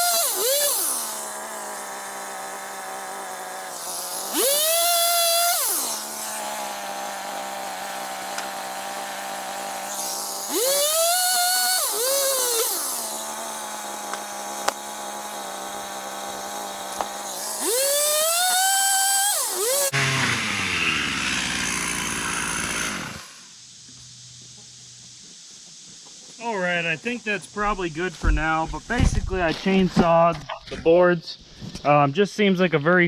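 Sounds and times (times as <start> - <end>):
chainsaw idling and revving: 0.0 - 23.7.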